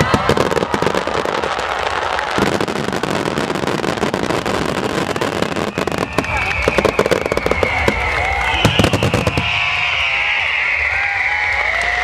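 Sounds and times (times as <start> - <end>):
fireworks crackling: 0.0 - 11.9
fireworks sharp pops: 2.3 - 9.6.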